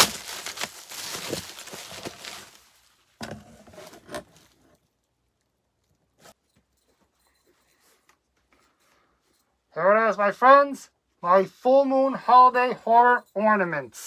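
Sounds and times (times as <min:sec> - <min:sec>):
packaging rustling: 0:00.0 - 0:03.0.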